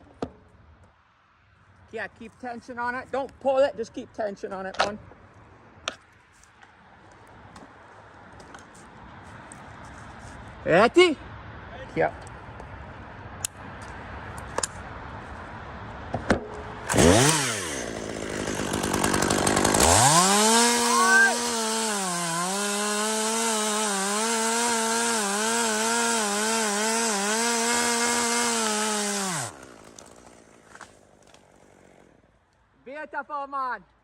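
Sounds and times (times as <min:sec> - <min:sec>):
chainsaw cutting through trunk: 0:16.8 - 0:32.2.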